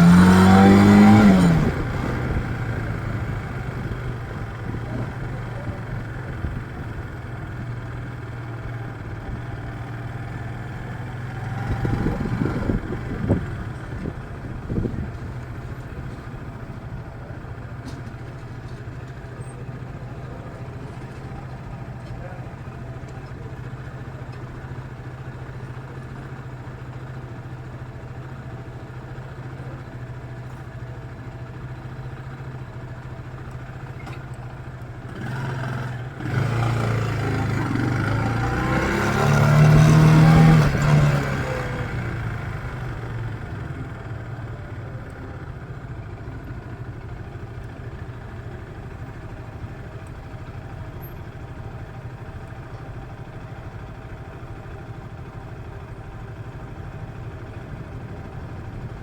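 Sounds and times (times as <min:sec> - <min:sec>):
loud passing engine: 0:00.0 - 0:02.6, 0:35.2 - 0:42.4
motorcycle engine idling: 0:00.0 - 0:59.0.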